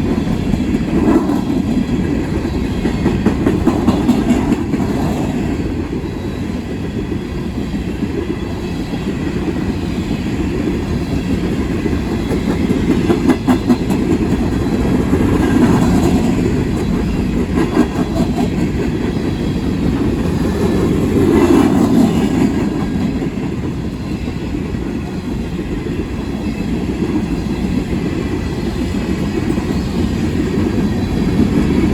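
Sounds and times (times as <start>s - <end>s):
wheels clacking over rail joints: 0.0s - 5.8s, 8.8s - 25.5s
train cars rumbling past: 0.0s - 31.9s.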